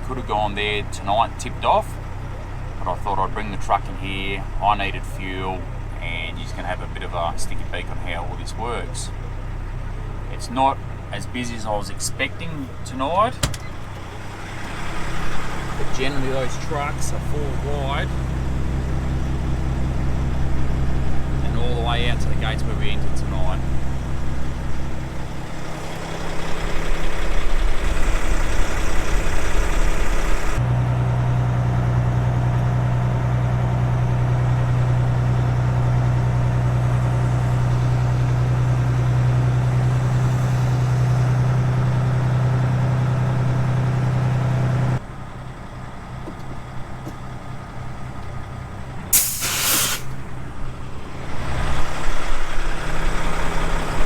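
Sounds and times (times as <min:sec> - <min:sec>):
diesel truck engine droning: 0:00.0 - 0:54.0
engine idling: 0:00.0 - 0:54.0
air brakes hissing: 0:49.1 - 0:50.3.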